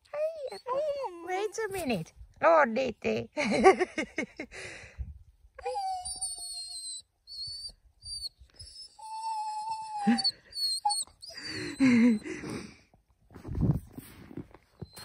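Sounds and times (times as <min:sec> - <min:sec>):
dog whining: 0:00.0 - 0:01.2, 0:05.6 - 0:12.6, 0:14.8 - 0:15.0.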